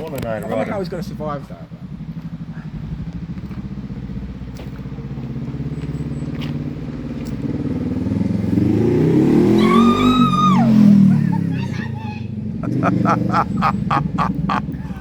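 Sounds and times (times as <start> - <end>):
motorcycle engine revving: 0.6 - 11.5, 12.3 - 15.0
person whooping: 9.6 - 10.8.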